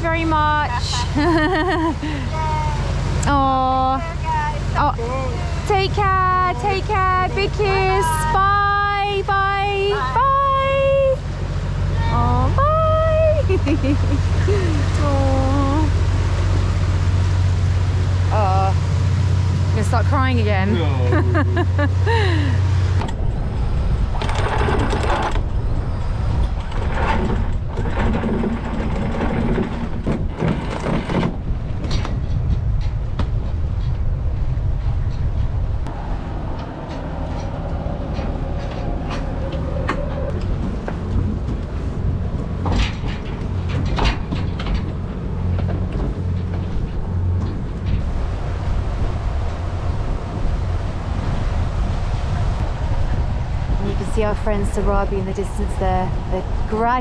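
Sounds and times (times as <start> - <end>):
boat engine droning: 0.0 - 57.0
wind rushing: 21.2 - 37.2, 46.7 - 57.0.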